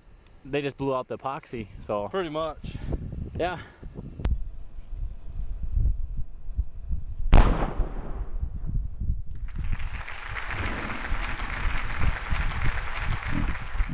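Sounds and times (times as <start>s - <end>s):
firecracker bang: 7.3s - 8.4s, 10.5s - 11.6s.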